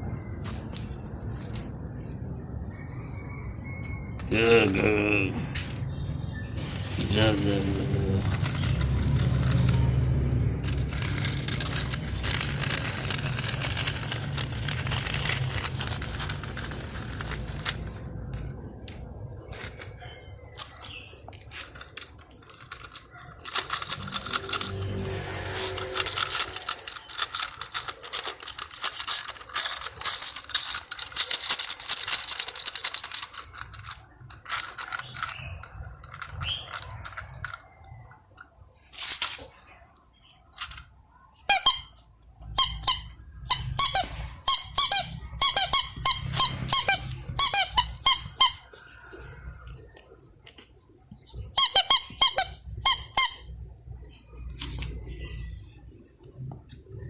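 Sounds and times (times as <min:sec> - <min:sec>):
plastic toys clicking and rattling: 0:00.0 - 0:02.3, 0:04.1 - 0:05.8, 0:06.6 - 0:57.0
rapid squeaking: 0:05.7 - 0:38.1, 0:40.3 - 0:56.0
sharp scrape: 0:23.6 - 0:27.6.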